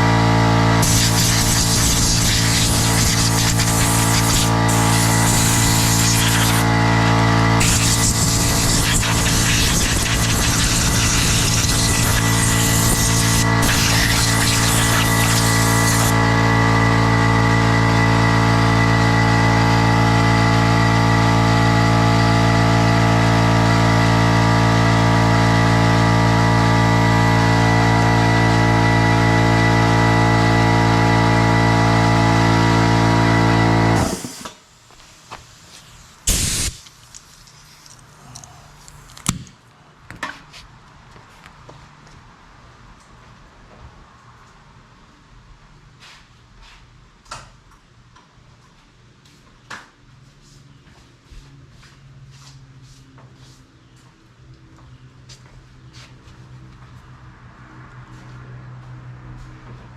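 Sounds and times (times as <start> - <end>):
electric air compressor humming: 0.0 - 34.6, 36.2 - 39.1.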